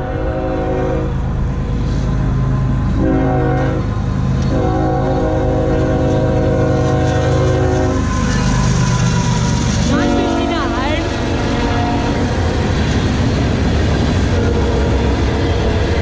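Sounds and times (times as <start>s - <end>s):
locomotive air horn blasts: 0.0s - 1.2s, 3.0s - 8.7s, 9.9s - 12.4s
locomotive engine rumble: 0.0s - 16.0s.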